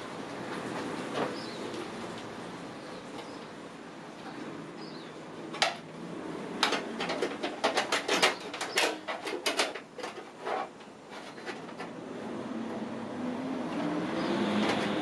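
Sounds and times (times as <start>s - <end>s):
sharp metallic clicks and knocks: 5.5s - 5.9s, 6.6s - 12.0s.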